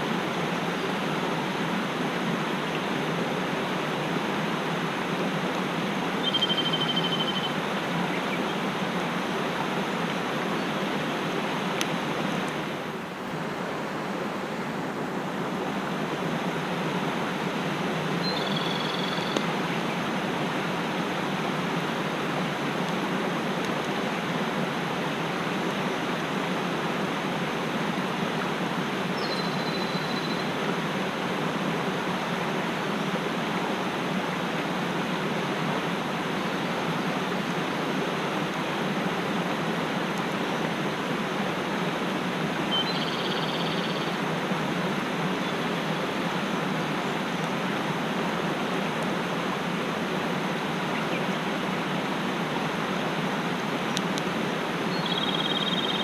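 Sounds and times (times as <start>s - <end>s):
stream rushing over rocks: 0.0s - 56.0s
bird whistling high note: 6.2s - 7.6s, 18.2s - 19.4s, 42.7s - 44.0s.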